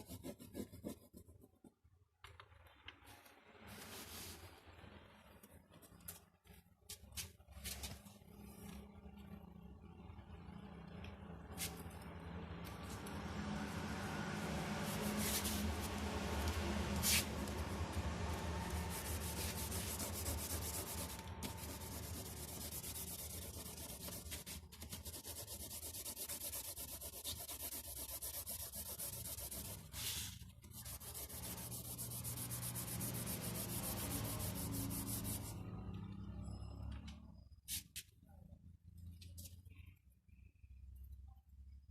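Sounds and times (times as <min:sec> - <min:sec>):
pencil shading on paper: 0:00.0 - 0:01.7, 0:18.7 - 0:35.5
steady low hum: 0:07.8 - 0:35.6.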